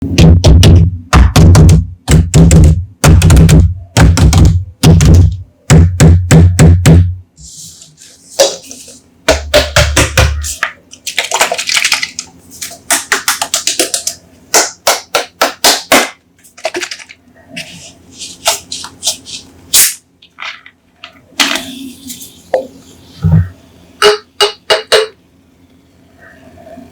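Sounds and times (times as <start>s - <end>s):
bottles tapping and clicking: 24.0s - 25.2s.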